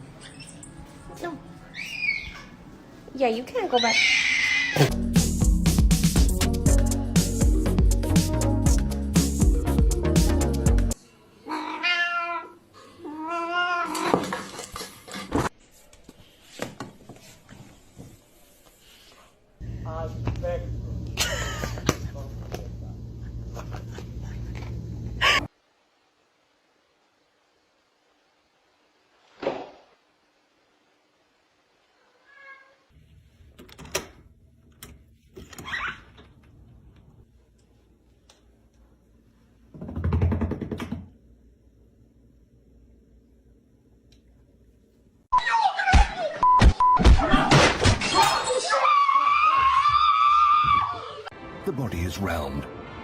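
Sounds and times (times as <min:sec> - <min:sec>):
background music: 0:04.8 - 0:11.0, 0:51.3 - 0:53.0
cat meowing: 0:11.5 - 0:14.1, 0:32.0 - 0:32.9.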